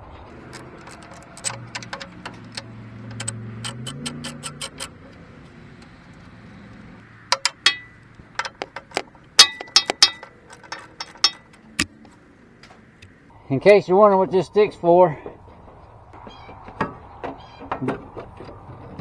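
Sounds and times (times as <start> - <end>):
metal clicks and knocks: 0.4 - 12.1.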